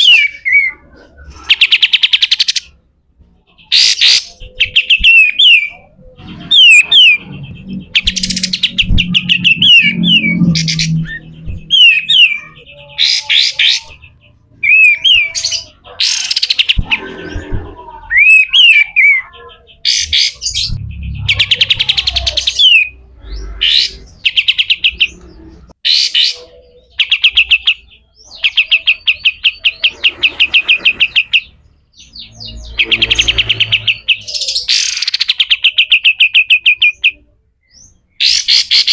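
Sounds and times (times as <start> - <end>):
bird chattering rapidly: 3.6 - 25.2.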